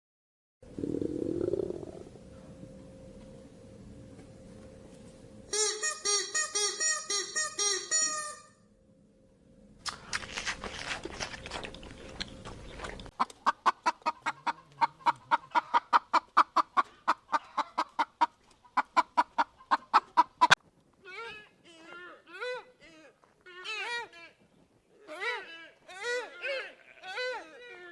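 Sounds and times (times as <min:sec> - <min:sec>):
poultry clucking: 0:13.1 - 0:20.6.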